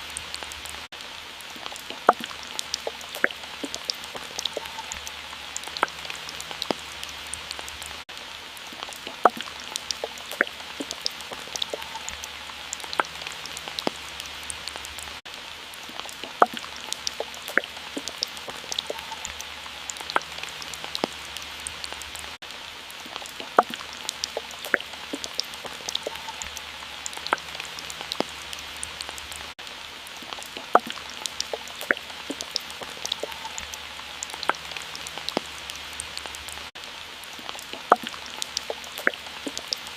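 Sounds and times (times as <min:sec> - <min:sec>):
steady watery hiss: 0:00.0 - 0:39.9
water drops plinking: 0:01.6 - 0:05.0, 0:09.0 - 0:12.2, 0:16.2 - 0:21.1, 0:23.4 - 0:27.5, 0:30.6 - 0:33.7, 0:37.8 - 0:39.8.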